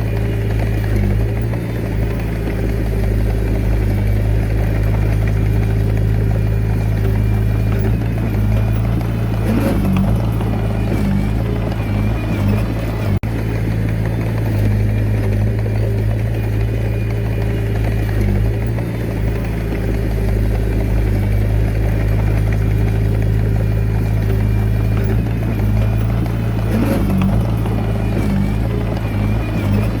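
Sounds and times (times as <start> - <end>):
bulldozer diesel engine running: 0.0 - 30.0.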